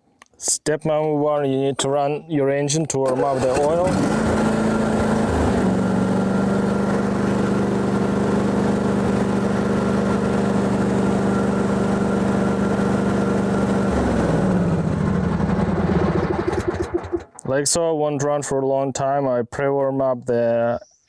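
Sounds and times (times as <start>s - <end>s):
lawn tractor engine running: 3.0s - 17.4s.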